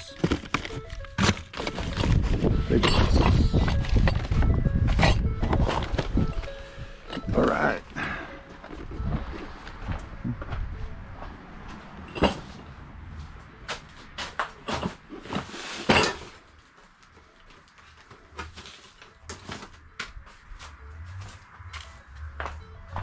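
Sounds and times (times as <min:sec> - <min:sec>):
objects knocking and clattering: 0:00.0 - 0:06.2, 0:12.0 - 0:12.7, 0:13.7 - 0:16.5
scraping clatter: 0:00.0 - 0:06.2, 0:12.0 - 0:12.7, 0:14.2 - 0:16.5.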